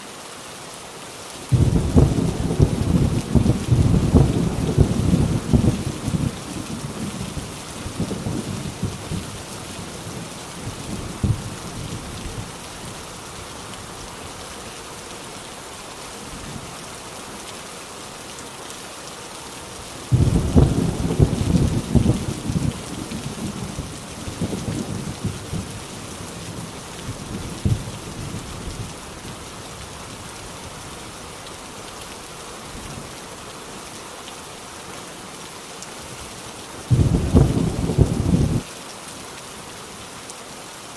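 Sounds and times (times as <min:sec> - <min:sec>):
heavy rain on a tin roof: 0:00.0 - 0:40.9
thunder rumbling: 0:01.5 - 0:12.4, 0:20.1 - 0:28.9, 0:36.9 - 0:38.6
loud thunder clap: 0:20.1 - 0:22.7, 0:36.9 - 0:38.6.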